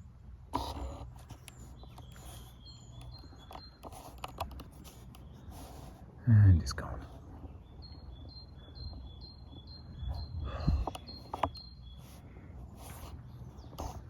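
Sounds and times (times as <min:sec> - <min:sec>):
handling thumps and clicks: 0:02.9 - 0:05.3, 0:10.6 - 0:11.6.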